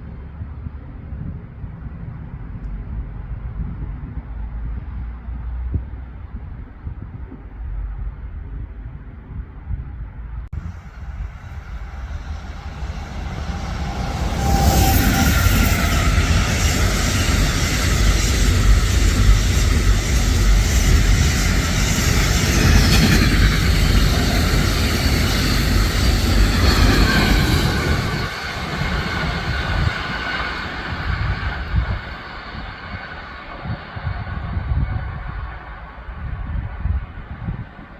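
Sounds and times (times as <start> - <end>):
train wheels rumbling on rails: 0.0 - 37.9
whining train drive: 10.6 - 37.9.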